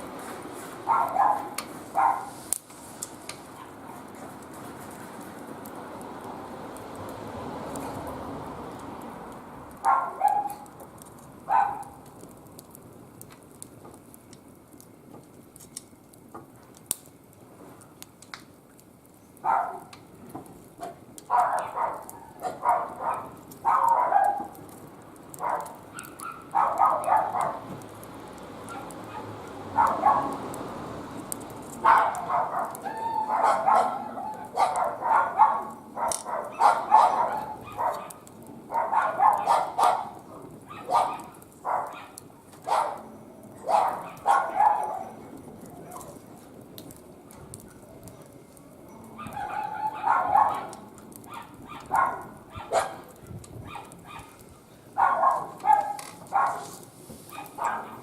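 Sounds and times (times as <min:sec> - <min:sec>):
faint wood fire crackling: 0:00.0 - 0:58.0
dog barking: 0:00.9 - 0:02.3, 0:09.8 - 0:10.7, 0:11.5 - 0:12.0, 0:19.4 - 0:19.9, 0:21.3 - 0:24.5, 0:25.4 - 0:27.6, 0:28.7 - 0:30.4, 0:31.8 - 0:45.2, 0:49.2 - 0:54.4, 0:55.0 - 0:56.7, 0:57.3 - 0:58.0.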